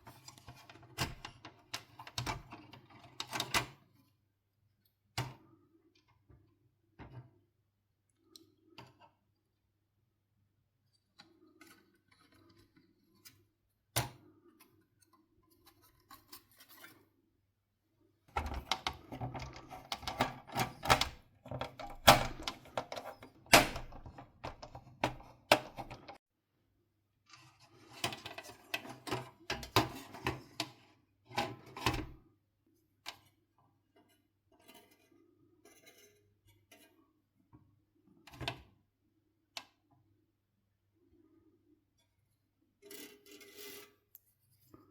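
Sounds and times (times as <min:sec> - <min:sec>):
plastic and metal parts clicking: 0:18.4 - 0:26.2.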